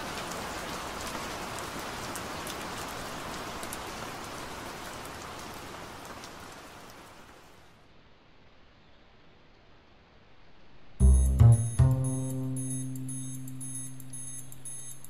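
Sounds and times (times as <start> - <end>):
rain falling: 0.0 - 7.9, 11.0 - 15.0
drops ticking: 11.0 - 15.0.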